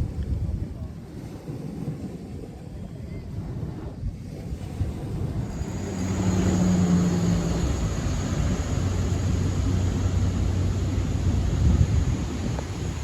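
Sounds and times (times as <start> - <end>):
engine humming with high whine: 4.8 - 13.0.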